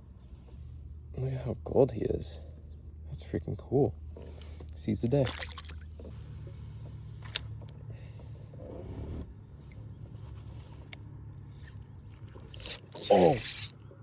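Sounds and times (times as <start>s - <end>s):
steady low hum: 0.0s - 14.0s
fish splashing at lure: 5.2s - 7.5s, 11.6s - 13.8s.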